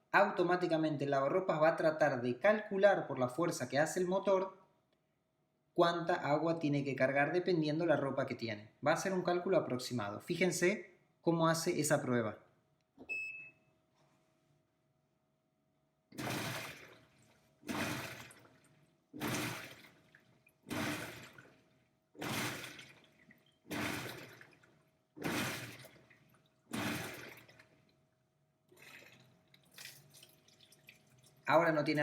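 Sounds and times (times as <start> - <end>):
washing machine agitator pulses: 16.1 - 28.0, 28.7 - 31.8.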